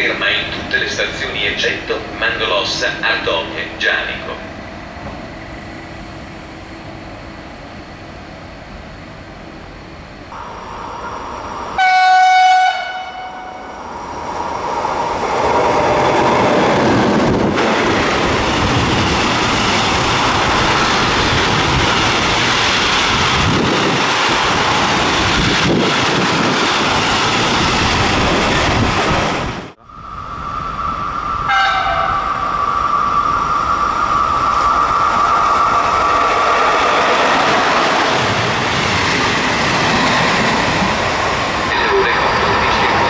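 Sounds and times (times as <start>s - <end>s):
freight train passing: 0.0s - 43.0s
locomotive horn blast: 11.8s - 13.7s, 31.5s - 32.3s.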